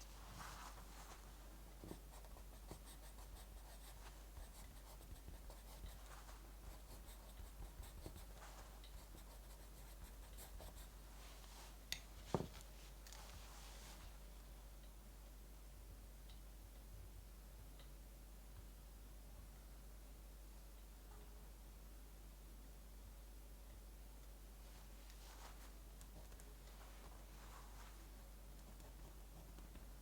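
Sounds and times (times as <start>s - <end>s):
soft knock: 12.3s - 12.6s.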